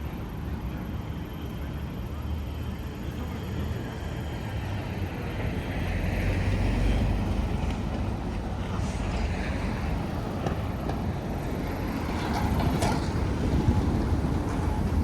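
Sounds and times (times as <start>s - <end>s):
traffic rumble: 3.2s - 15.0s.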